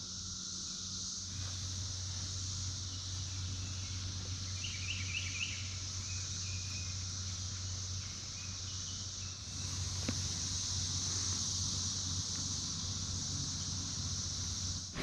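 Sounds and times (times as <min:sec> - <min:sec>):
cicadas singing in chorus: 0:00.0 - 0:15.0
bird chirping: 0:02.9 - 0:09.9.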